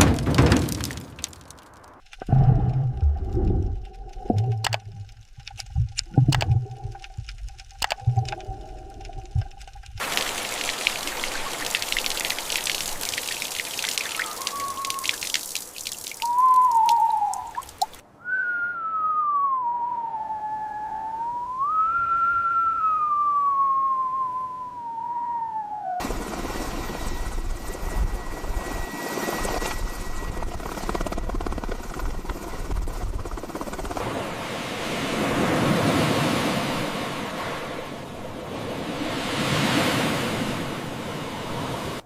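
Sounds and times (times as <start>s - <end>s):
rain patter: 0.0s - 18.0s
rushing wind: 25.1s - 42.0s
surf: 34.0s - 42.0s.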